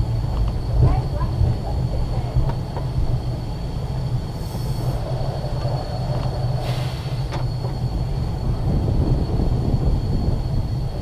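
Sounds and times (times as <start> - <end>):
tram wheels rumbling: 0.0 - 11.0
short hisses: 4.4 - 5.0, 6.6 - 7.3.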